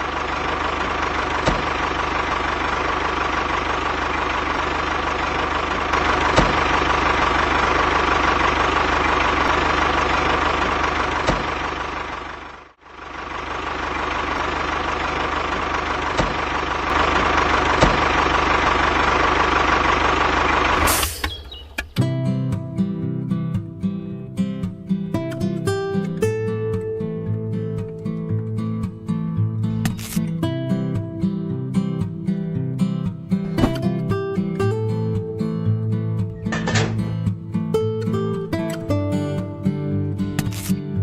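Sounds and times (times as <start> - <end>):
acoustic guitar music: 21.9 - 41.0.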